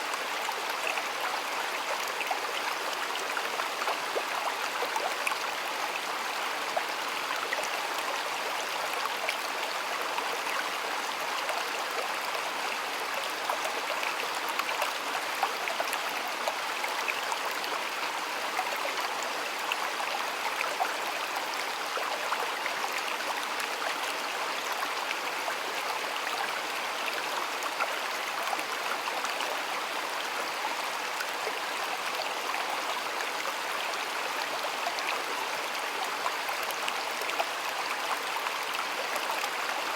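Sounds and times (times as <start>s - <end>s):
stream babbling with splashes: 0.0s - 39.9s.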